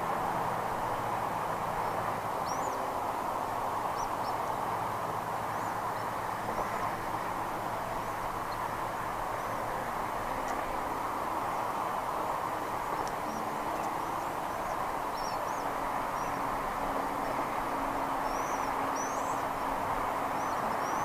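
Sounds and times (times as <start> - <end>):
outdoor background rush: 0.0 - 21.0
bird chirps: 20.4 - 21.0.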